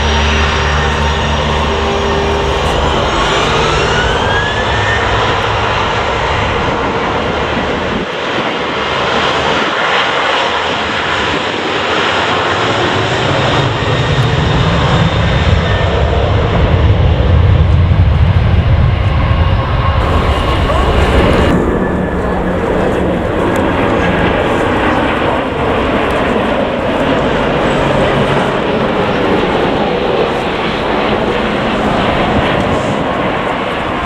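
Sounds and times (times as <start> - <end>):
low rumble: 0.0 - 8.1, 14.7 - 26.5
rising whine: 0.0 - 8.1, 11.3 - 34.0
jet engines running: 0.0 - 34.0.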